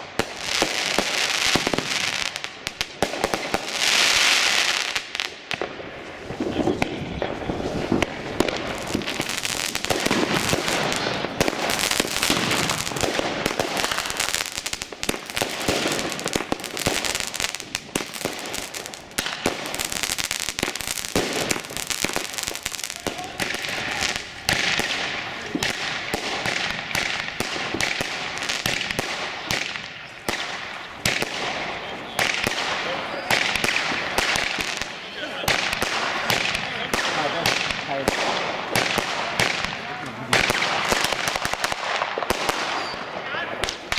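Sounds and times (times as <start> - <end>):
fireworks bangs and crackling: 0.0 - 43.9
people's voices: 6.0 - 14.8, 19.6 - 28.6, 29.9 - 41.6, 42.7 - 43.9.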